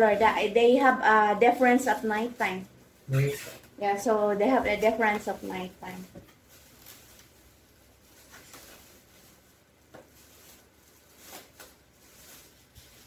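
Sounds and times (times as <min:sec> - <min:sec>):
faint rustles: 0:04.7 - 0:13.0.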